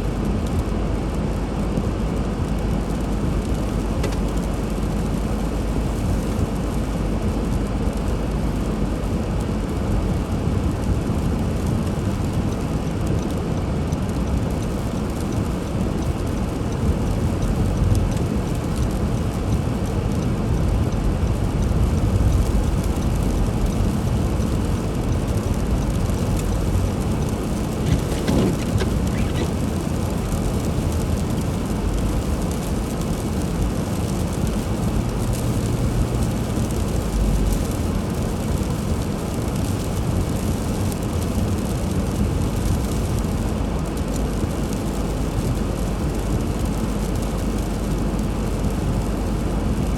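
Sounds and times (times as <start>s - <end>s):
car engine and tyres rumbling: 0.0s - 49.9s
road hiss: 26.0s - 32.8s.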